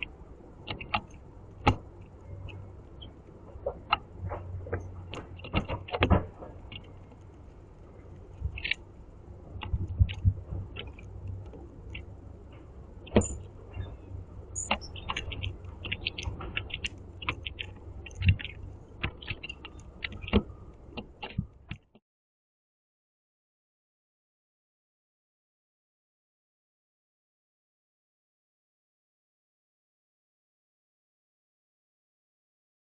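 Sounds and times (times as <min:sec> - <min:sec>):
steady low hum: 0:00.0 - 0:21.9
bird pecking clicks and taps: 0:00.7 - 0:04.1, 0:08.4 - 0:08.8, 0:14.6 - 0:21.8.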